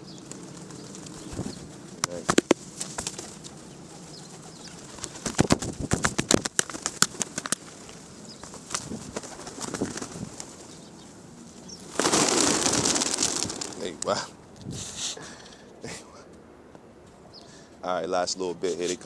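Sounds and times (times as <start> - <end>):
pigeon wings flapping: 0.0 - 10.8, 11.5 - 14.2
pigeons cooing: 0.0 - 16.4.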